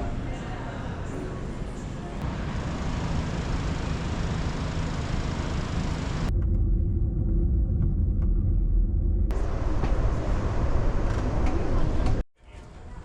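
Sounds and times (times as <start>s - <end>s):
passenger train rumbling: 0.0s - 12.2s
deep muffled rumble: 6.2s - 12.2s.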